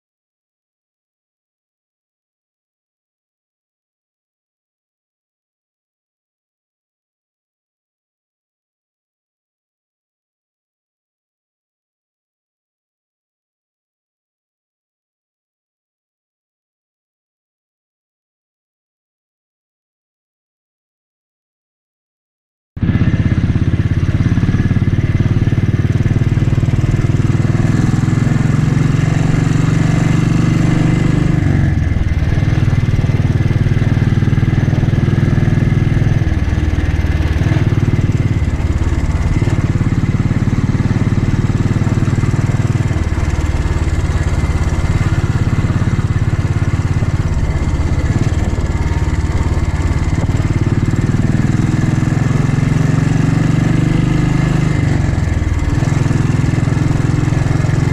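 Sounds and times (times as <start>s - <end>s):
motorcycle engine running: 22.8s - 57.9s.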